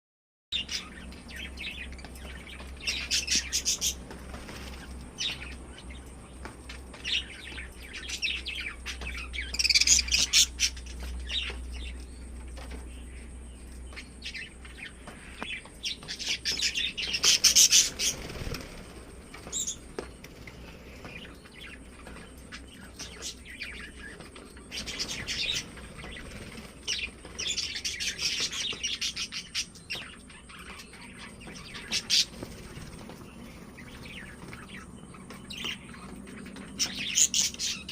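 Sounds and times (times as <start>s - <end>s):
lovebirds chirping: 0.5s - 37.9s.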